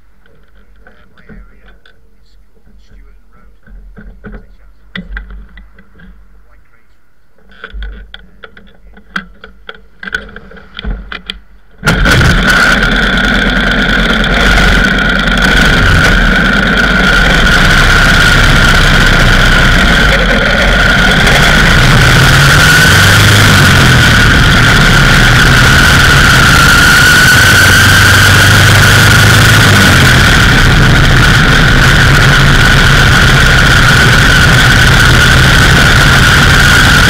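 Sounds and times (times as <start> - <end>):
high whine: 0.0 - 37.0
motorcycle engine running: 11.8 - 37.0.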